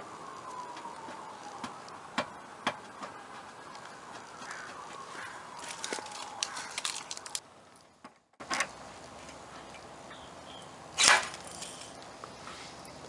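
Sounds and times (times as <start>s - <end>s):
sharp crack of dent puller: 11.0s - 11.6s.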